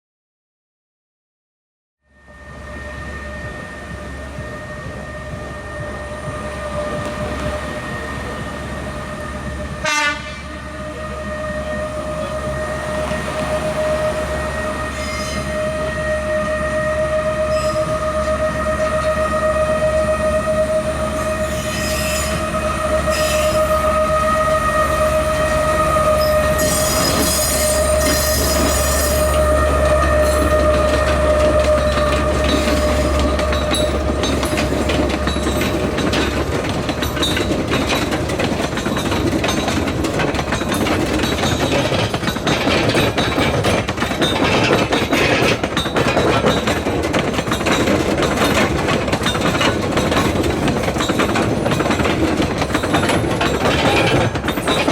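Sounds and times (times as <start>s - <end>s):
diesel locomotive low hum: 2.0s - 54.9s
train wheel squeal: 2.1s - 54.9s
wagon wheels clattering over rail joints: 30.3s - 54.9s.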